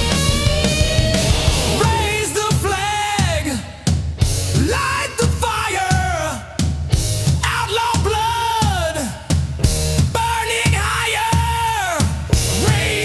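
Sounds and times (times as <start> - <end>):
heavy rock music: 0.0 - 13.0
pounding drum kit: 0.0 - 13.0
person singing: 1.7 - 3.8, 10.2 - 13.0.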